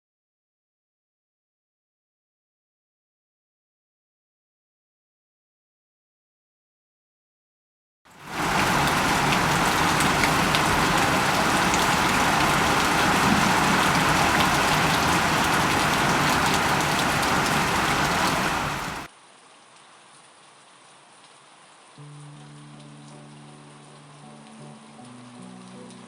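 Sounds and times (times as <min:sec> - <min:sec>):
heavy rain hiss: 0:08.1 - 0:19.1
raindrops ticking on a surface: 0:08.1 - 0:26.0.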